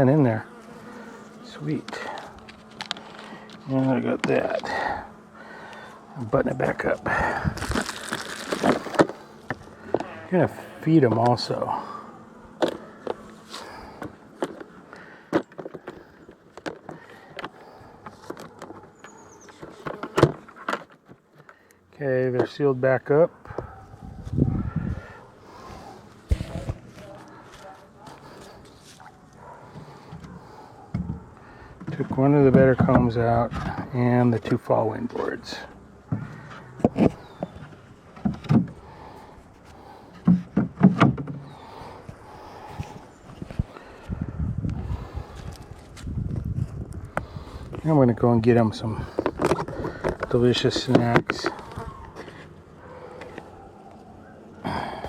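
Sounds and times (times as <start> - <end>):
hard knocks and clunks: 40.2 - 41.5.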